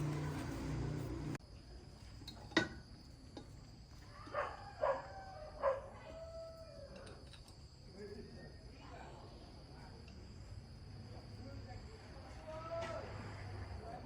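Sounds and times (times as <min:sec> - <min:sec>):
low running sound: 0:00.0 - 0:01.4.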